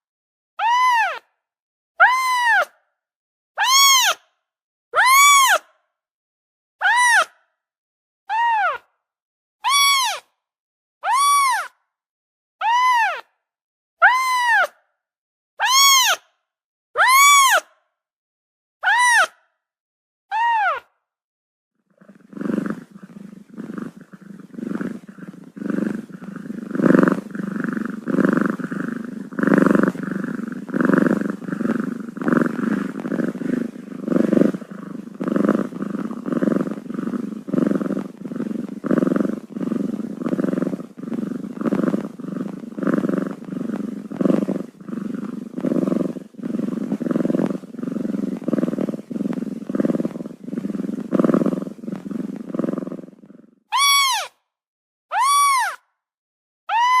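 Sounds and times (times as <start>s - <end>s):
cat purring: 22.0s - 53.5s.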